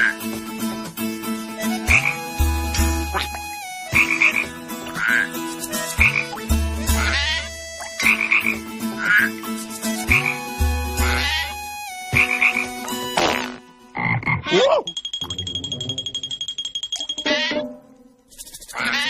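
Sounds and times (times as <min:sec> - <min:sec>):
frog croaking: 0:11.0 - 0:11.6, 0:12.2 - 0:14.8, 0:18.4 - 0:19.0.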